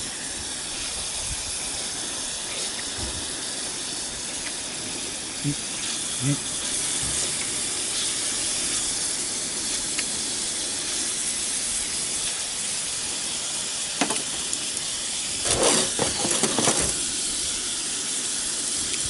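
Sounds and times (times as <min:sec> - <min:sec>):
pork sizzling in a skillet: 0:00.0 - 0:19.0
handling noise: 0:15.4 - 0:17.0.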